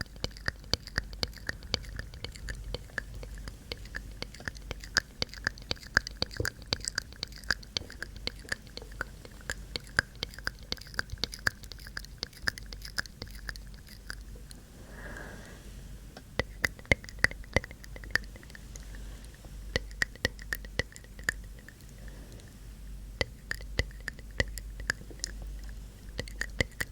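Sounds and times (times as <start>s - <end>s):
wet tongue and lip clicks: 0.0s - 14.6s, 16.2s - 26.9s
soft breath: 14.4s - 16.2s, 17.6s - 19.7s, 21.0s - 23.1s.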